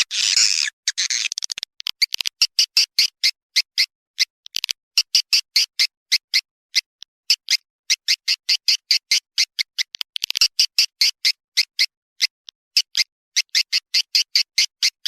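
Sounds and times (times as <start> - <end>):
short high bird chirps: 0.0 - 1.4.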